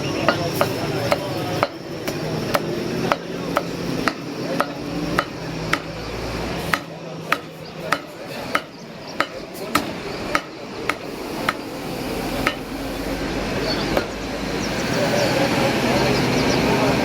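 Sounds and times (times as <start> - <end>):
cleaver chopping meat: 0.2 - 11.8, 12.4 - 12.7.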